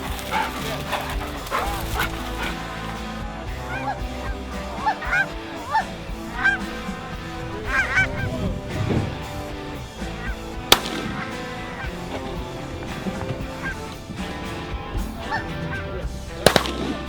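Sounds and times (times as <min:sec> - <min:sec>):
background music: 0:00.0 - 0:17.0
geese honking: 0:00.0 - 0:17.0
sharp crack: 0:04.8 - 0:17.0.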